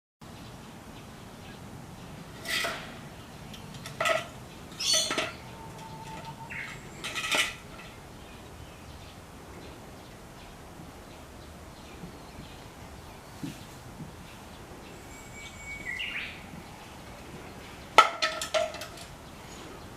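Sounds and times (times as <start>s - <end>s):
bamboo feeder knocking and clattering: 2.4s - 8.0s, 17.9s - 19.3s.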